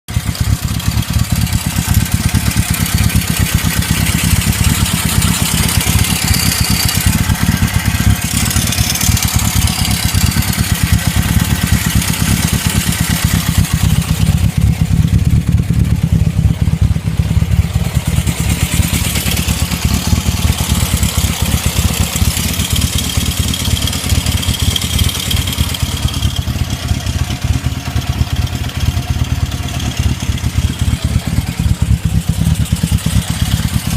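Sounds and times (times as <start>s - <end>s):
rapid knocking clatter: 0.1s - 16.2s
motorcycle engine running: 0.1s - 33.9s.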